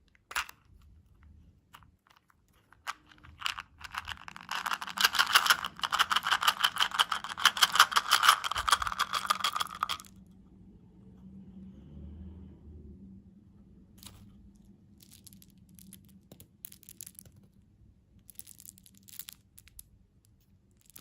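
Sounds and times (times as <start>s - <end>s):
crunching candy: 2.8s - 10.1s.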